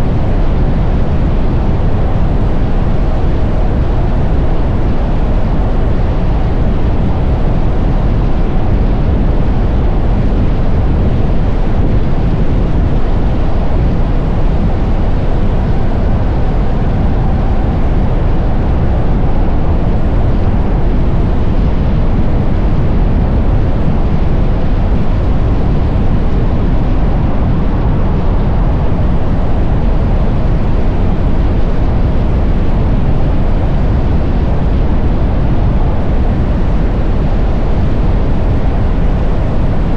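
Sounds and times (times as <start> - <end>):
wind rush on microphone: 0.0 - 39.9
road noise: 11.0 - 30.6.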